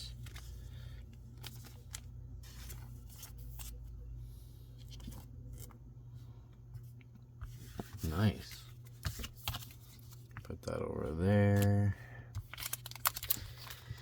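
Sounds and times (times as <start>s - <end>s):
cards clicking and rustling: 0.0s - 3.9s, 6.9s - 10.6s, 11.3s - 14.0s
steady low hum: 0.0s - 14.0s.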